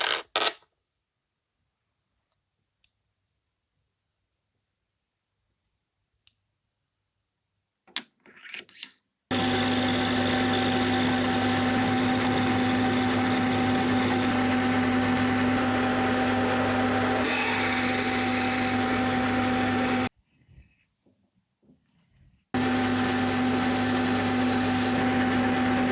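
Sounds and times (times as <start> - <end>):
power tool humming: 9.3 - 20.1, 22.6 - 25.9.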